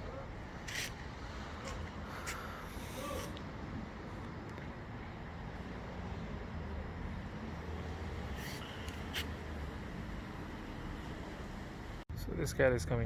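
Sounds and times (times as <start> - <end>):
outdoor background hiss: 0.0 - 13.0
vehicle engine rumble: 0.0 - 13.0
short sharp hissing: 2.2 - 3.4.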